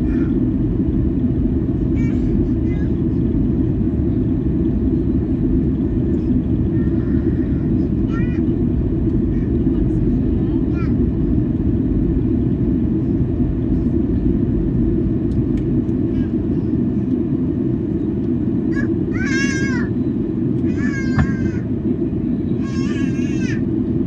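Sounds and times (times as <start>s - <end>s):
airplane cabin engine roar: 0.0s - 24.0s
child crying: 18.7s - 20.0s, 20.6s - 21.6s, 22.6s - 23.6s.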